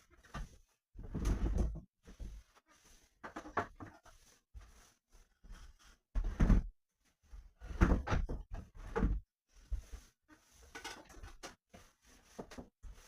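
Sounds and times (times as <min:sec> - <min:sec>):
objects knocking and thudding: 0:00.2 - 0:02.4, 0:03.2 - 0:04.0, 0:06.1 - 0:06.8, 0:07.6 - 0:10.0, 0:10.6 - 0:11.6.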